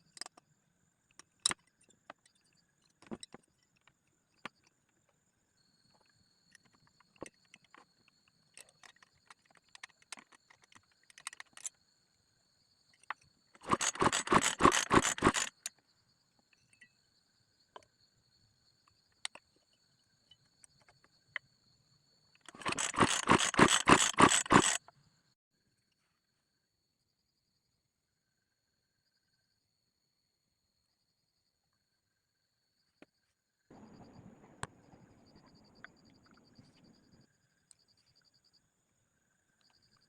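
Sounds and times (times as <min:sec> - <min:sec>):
faint clicks and rattles: 0:06.0 - 0:11.8, 0:12.9 - 0:15.8, 0:22.4 - 0:24.9
small motorcycle engine chugging: 0:13.6 - 0:15.7, 0:22.5 - 0:24.8.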